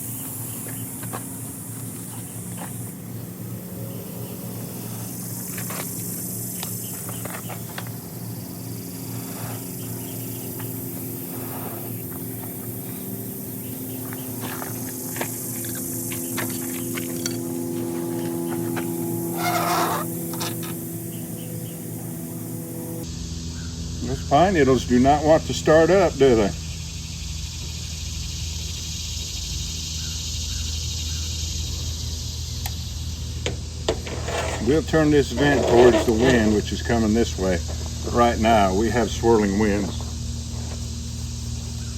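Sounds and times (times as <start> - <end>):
insects droning: 0.0 - 41.9
low hum: 0.0 - 41.9
fire crackling in a stove: 32.1 - 37.8.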